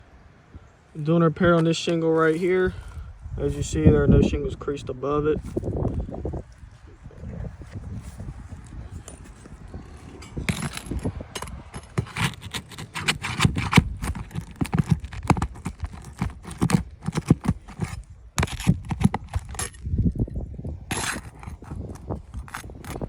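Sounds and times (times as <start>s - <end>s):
hands and tools knocking on shingle: 10.5s - 19.8s.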